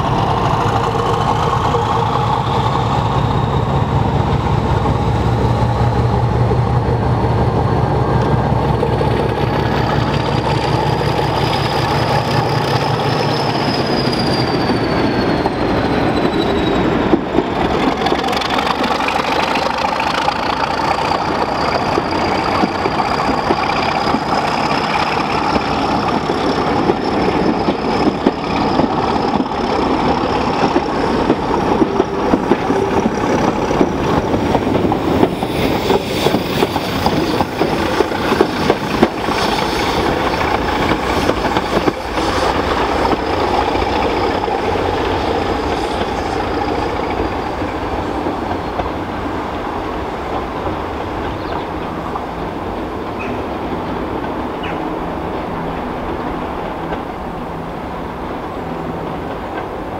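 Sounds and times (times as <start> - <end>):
train wheels clattering over rail joints: 15.5 - 57.3.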